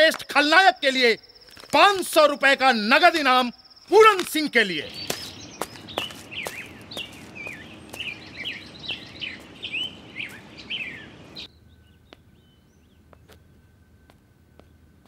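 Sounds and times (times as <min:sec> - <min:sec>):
small birds chirping: 0:00.0 - 0:13.7.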